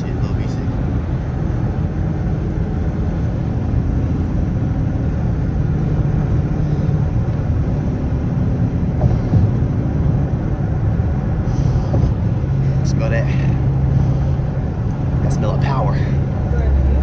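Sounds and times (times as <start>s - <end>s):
car exhaust low rumble: 0.0s - 17.0s.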